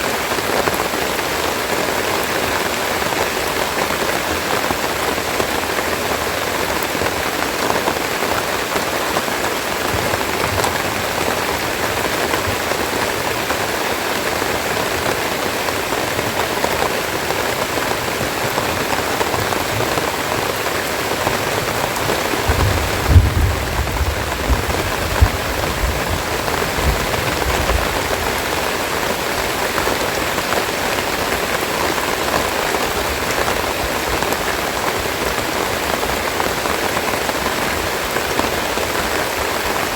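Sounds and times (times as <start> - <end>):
steady rain falling: 0.0 - 39.9
low bumps: 21.1 - 28.4.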